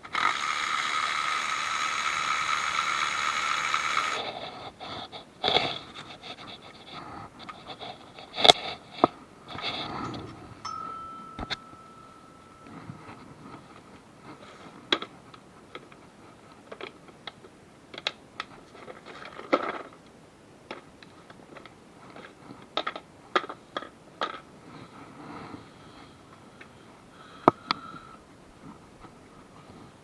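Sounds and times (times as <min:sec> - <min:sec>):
faint steady tone: 0:09.9 - 0:14.1
hand tools clicking and clinking: 0:10.0 - 0:13.0.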